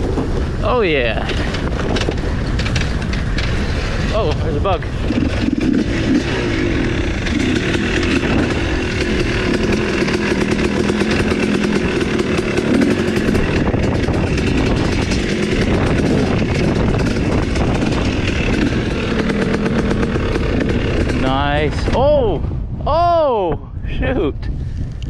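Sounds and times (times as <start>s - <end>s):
dirt bike engine revving: 0.7s - 22.2s.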